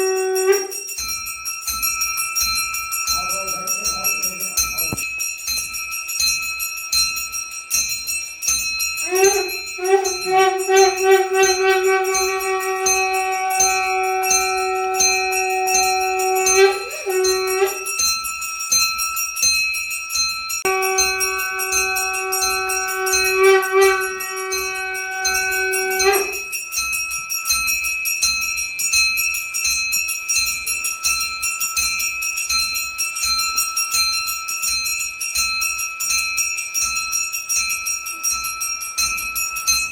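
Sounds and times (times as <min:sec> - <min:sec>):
long blown note: 0:00.0 - 0:00.9, 0:09.0 - 0:18.0, 0:20.6 - 0:26.5
metal hand bell ringing: 0:00.0 - 0:39.9.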